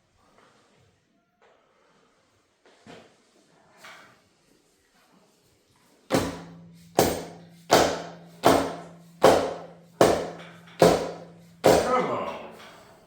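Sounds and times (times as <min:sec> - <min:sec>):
hammer striking metal: 0:06.1 - 0:12.7
metal ringing: 0:06.1 - 0:12.9.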